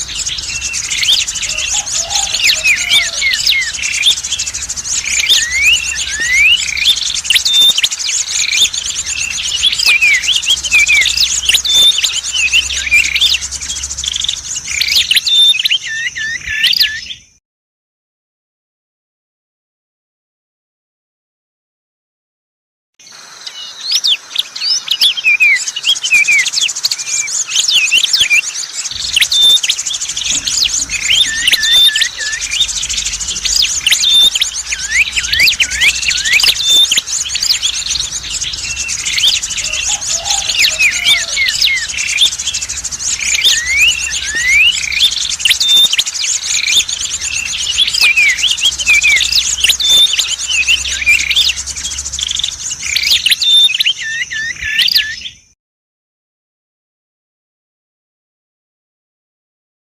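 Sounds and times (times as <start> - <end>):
small songbirds chirping: 0.0 - 17.4, 23.0 - 55.6
fast high trill: 28.9 - 53.3.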